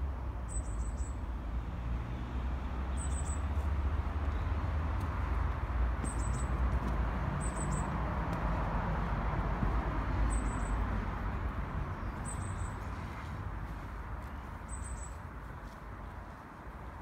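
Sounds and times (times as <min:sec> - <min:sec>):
small bird chirping: 0:03.0 - 0:03.5, 0:06.0 - 0:06.5.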